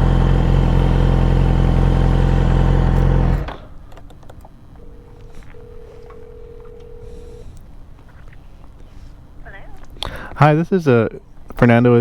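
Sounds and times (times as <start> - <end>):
motorcycle engine running: 0.0 - 3.7
phone ringing tone: 4.8 - 7.6.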